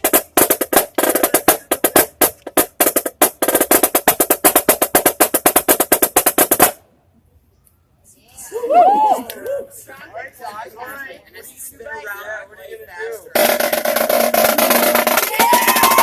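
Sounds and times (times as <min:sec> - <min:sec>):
marching snare drum strokes: 0:00.0 - 0:06.8, 0:13.3 - 0:16.0.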